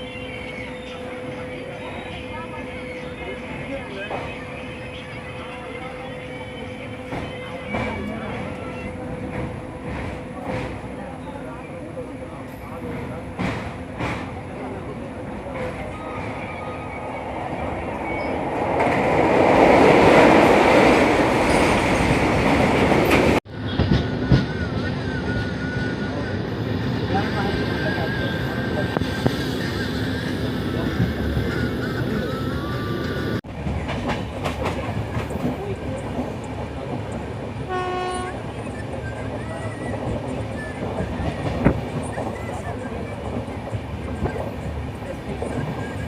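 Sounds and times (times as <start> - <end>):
passenger train running: 0.0 - 46.0
train horn blast: 37.7 - 38.5.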